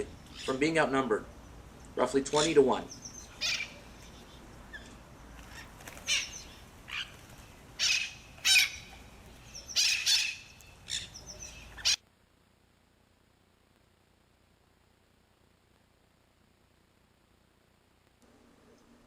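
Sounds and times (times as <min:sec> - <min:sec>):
conures calling: 0:00.0 - 0:12.0.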